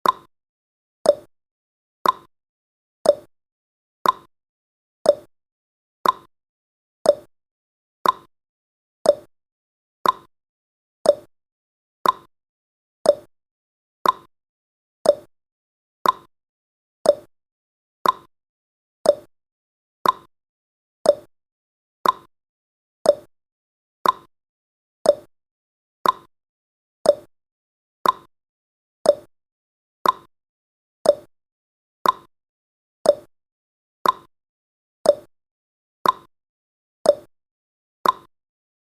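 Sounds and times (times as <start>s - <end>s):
timer ticking: 0.0s - 0.3s, 1.1s - 1.3s, 2.0s - 2.3s, 3.0s - 3.3s, 4.0s - 4.3s, 5.0s - 5.3s, 6.0s - 6.3s, 7.0s - 7.3s, 8.0s - 8.3s, 9.0s - 9.3s, 10.0s - 10.3s, 11.0s - 11.3s, 12.0s - 12.3s, 13.0s - 13.3s, 14.0s - 14.3s, 15.0s - 15.3s, 16.0s - 16.3s, 17.0s - 17.3s, 18.0s - 18.3s, 19.0s - 19.3s, 20.0s - 20.3s, 21.0s - 21.3s, 22.0s - 22.3s, 23.0s - 23.3s, 24.0s - 24.3s, 25.0s - 25.3s, 26.0s - 26.3s, 27.0s - 27.3s, 28.0s - 28.3s, 29.0s - 29.3s, 30.0s - 30.3s, 31.0s - 31.3s, 32.0s - 32.3s, 33.0s - 33.3s, 34.0s - 34.3s, 35.0s - 35.3s, 36.0s - 36.3s, 37.1s - 37.3s, 38.0s - 38.3s.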